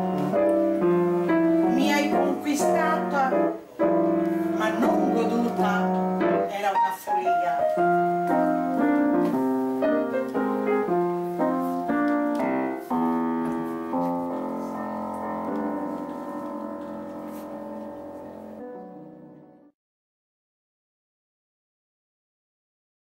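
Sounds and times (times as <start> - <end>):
piano chords: 0.0 - 19.8.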